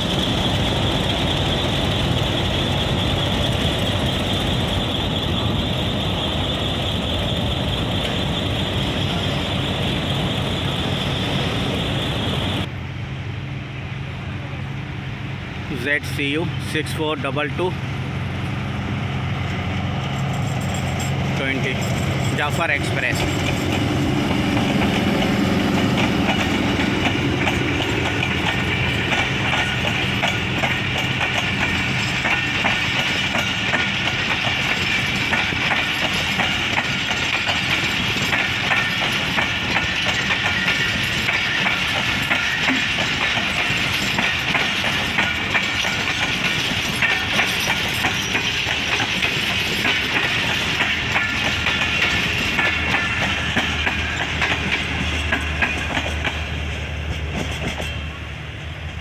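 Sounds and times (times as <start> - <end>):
train wheels clacking on rails: 0.0 - 12.7, 16.0 - 59.0
diesel locomotive engine drone: 0.0 - 59.0.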